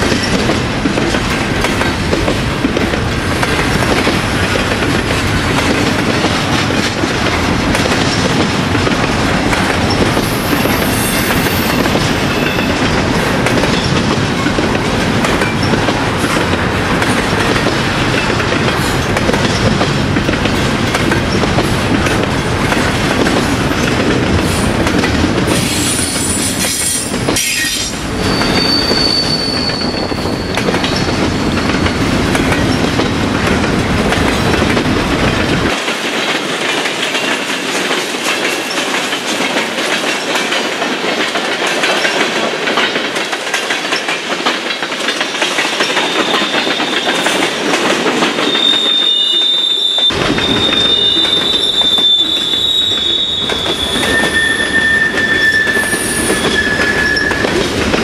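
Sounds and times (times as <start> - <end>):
freight train rolling past: 0.0 - 58.0
steel wheels clacking over rail: 0.0 - 58.0
high wheel squeals: 10.2 - 12.8, 25.7 - 30.7, 48.4 - 57.6.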